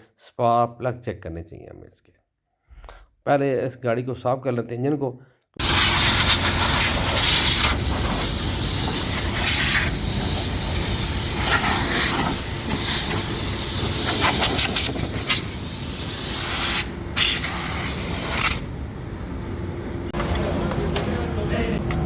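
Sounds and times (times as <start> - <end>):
pressure washer jet hissing: 5.6 - 18.7.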